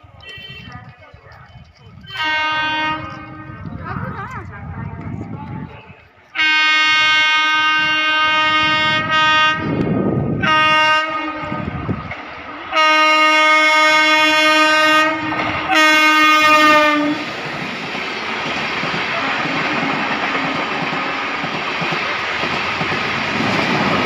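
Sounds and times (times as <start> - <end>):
passing train running noise: 0.0 - 24.0
locomotive horn blasts: 0.2 - 0.8, 2.1 - 3.7, 6.4 - 11.8, 12.6 - 17.3.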